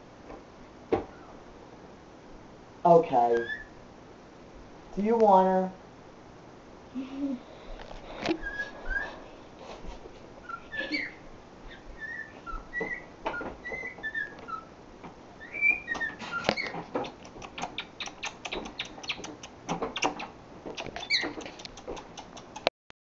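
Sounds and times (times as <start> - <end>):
cockatiel whistled chirps: 3.4 - 3.8, 8.4 - 9.2, 10.4 - 14.7, 15.4 - 16.8, 21.0 - 21.4
sharp clicks and taps: 16.9 - 22.7.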